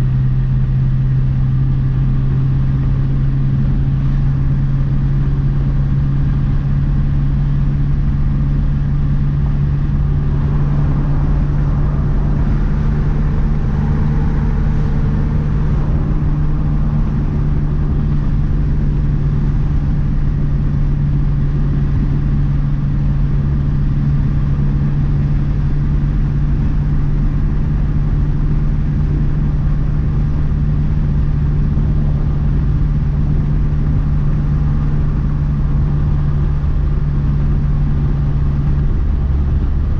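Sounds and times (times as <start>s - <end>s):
low road rumble: 0.0s - 39.9s
turbocharged car engine cruising: 0.0s - 39.9s.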